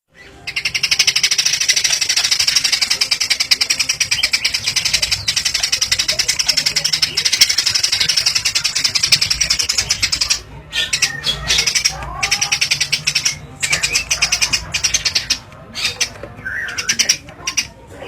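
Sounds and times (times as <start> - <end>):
songbird trilling: 0.2 - 17.8.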